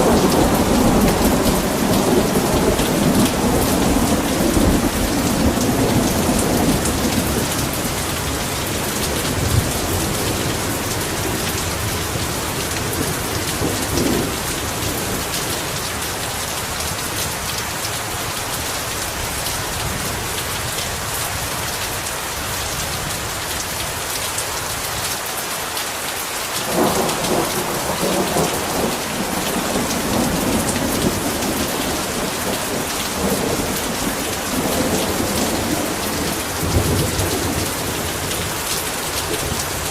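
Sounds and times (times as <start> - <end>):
thunder rumbling: 0.0 - 15.8, 26.6 - 39.9
heavy rain hissing: 0.0 - 39.9.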